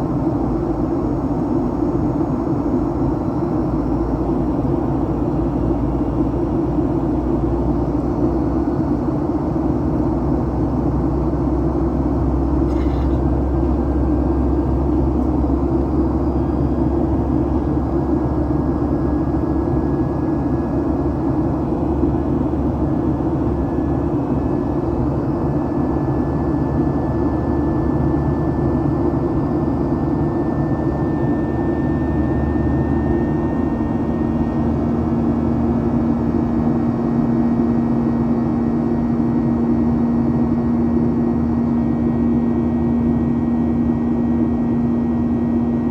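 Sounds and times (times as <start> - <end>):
airplane cabin airflow and engine drone: 0.0 - 45.9.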